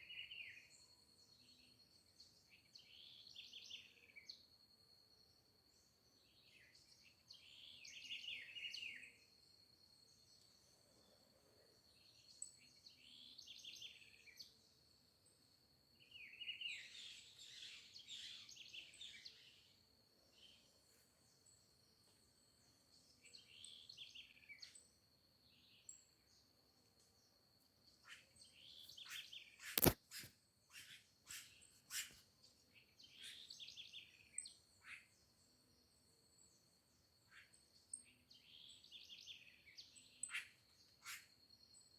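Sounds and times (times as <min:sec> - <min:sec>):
songbirds singing: 0:00.0 - 0:41.9
sharp clicks: 0:29.8 - 0:30.0.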